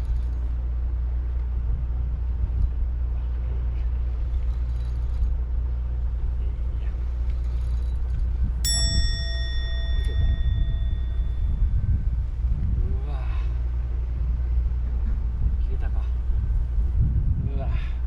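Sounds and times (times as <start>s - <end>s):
low rumble: 0.0s - 18.0s
metallic ding: 8.7s - 11.8s.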